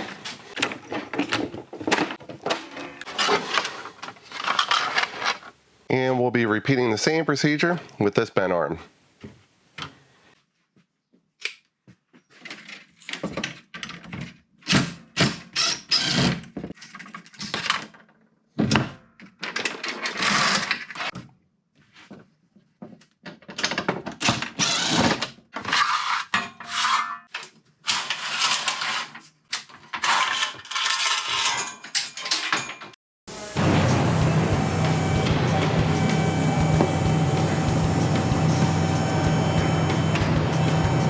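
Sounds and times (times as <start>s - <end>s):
metal parts clanking: 0.0s - 5.5s
power tool bursts: 33.3s - 41.0s.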